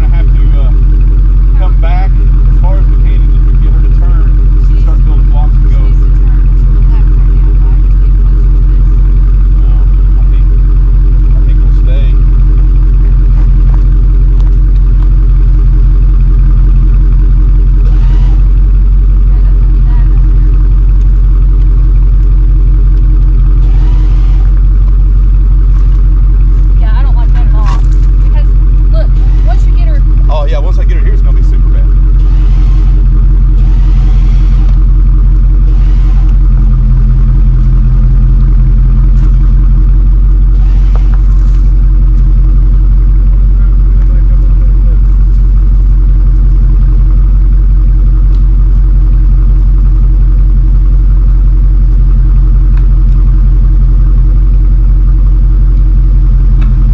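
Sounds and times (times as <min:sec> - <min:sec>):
vehicle engine idling: 0:00.0 - 0:56.9.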